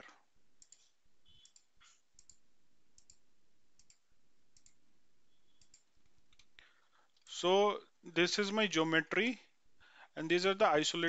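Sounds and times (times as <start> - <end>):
computer mouse clicking: 0.6 - 2.4, 3.0 - 3.2, 3.8 - 4.0, 4.6 - 4.8, 5.6 - 7.3.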